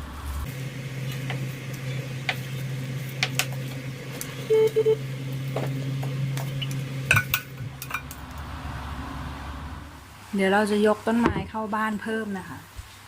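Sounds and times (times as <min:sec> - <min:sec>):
kitchen appliance humming: 0:00.4 - 0:10.0
short beeps: 0:04.5 - 0:05.0.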